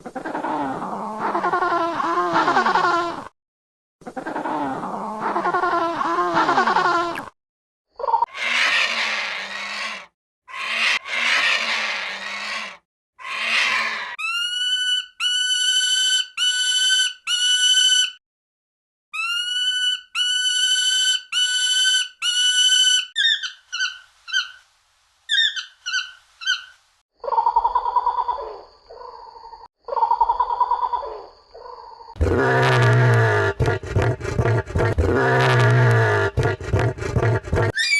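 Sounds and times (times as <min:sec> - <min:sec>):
harsh raspy bird screech: 0:08.3 - 0:18.2, 0:37.7 - 0:37.9
ringing whistled bird calls: 0:25.3 - 0:26.8.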